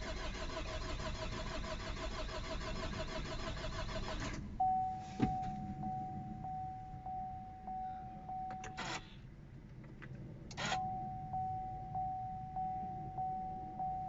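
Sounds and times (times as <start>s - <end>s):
diesel engine idling: 0.0s - 9.6s, 10.4s - 14.0s
electronic warning tone beeping: 4.6s - 9.1s, 10.6s - 14.0s.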